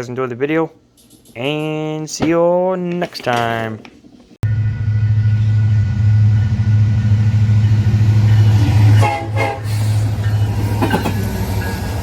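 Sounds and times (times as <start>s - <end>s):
horn blast: 4.4s - 10.2s
locomotive rumbling: 4.4s - 12.0s.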